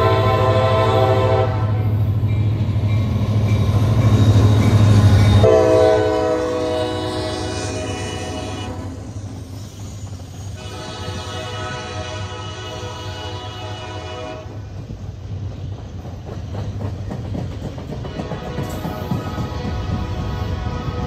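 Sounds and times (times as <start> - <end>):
train horn blasts: 0.0 - 2.0, 5.3 - 9.0, 10.6 - 14.7, 18.1 - 21.0
passing train rumble: 0.0 - 21.0.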